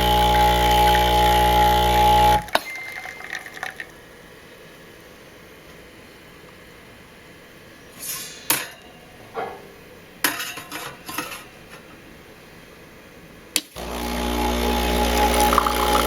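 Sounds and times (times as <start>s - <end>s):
espresso machine motor hum: 0.0s - 2.5s, 13.8s - 16.0s
kitchenware clinking: 2.5s - 4.0s, 8.0s - 11.9s.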